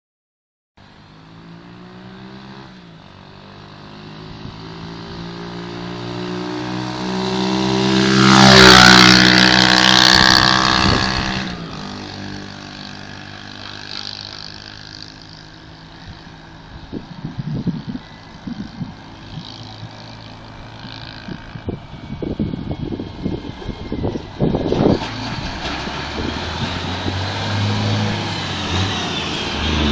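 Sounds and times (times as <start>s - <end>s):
pit bike engine passing: 0.8s - 29.9s.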